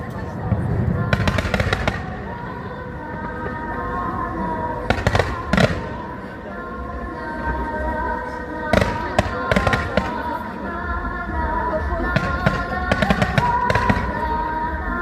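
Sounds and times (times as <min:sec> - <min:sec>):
music: 0:00.0 - 0:15.0
fireworks bursting with bangs: 0:00.1 - 0:02.6, 0:04.8 - 0:06.3, 0:08.7 - 0:10.4, 0:12.0 - 0:14.4.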